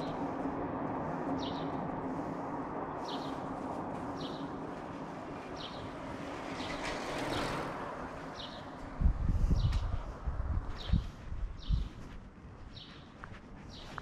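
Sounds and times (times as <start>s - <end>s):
broad noise swell: 0.0s - 14.0s
steady street hum: 0.0s - 14.0s
bird chirping: 12.7s - 14.0s.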